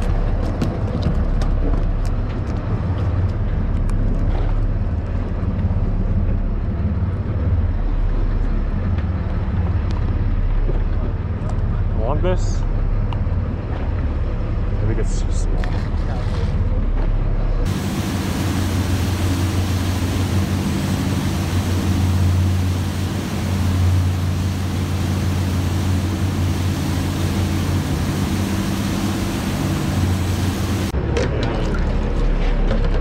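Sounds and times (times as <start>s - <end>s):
boat engines droning: 0.0s - 33.0s
rushing hiss of wind and water: 17.6s - 31.0s.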